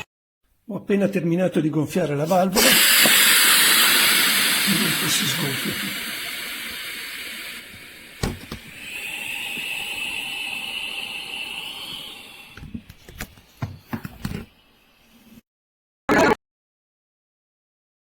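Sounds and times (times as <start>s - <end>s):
air hissing out of valve: 2.4s - 14.5s.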